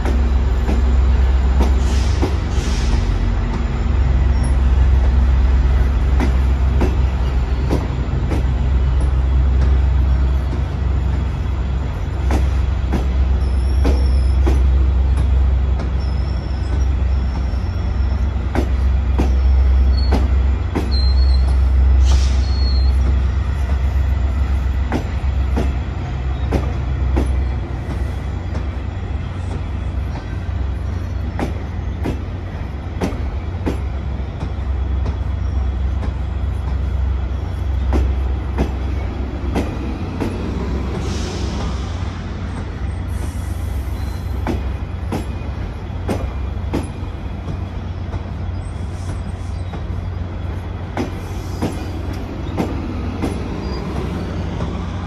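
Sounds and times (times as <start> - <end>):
train rumble: 0.0 - 55.0
wheel squeals: 13.3 - 23.3, 42.4 - 55.0.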